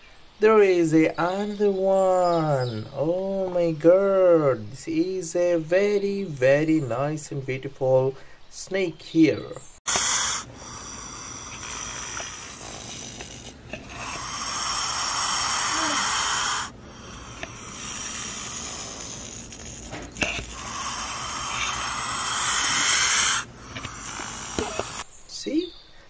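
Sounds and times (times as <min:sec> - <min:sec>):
snake hissing: 0:09.9 - 0:25.1.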